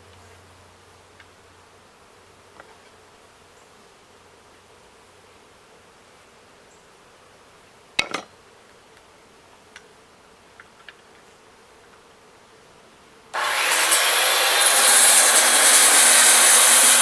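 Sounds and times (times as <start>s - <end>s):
bees buzzing: 13.4s - 17.0s.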